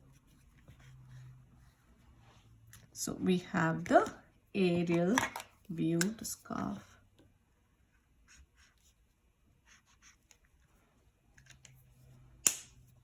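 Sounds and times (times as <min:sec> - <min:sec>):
drawing strokes on paper: 0:08.2 - 0:10.5.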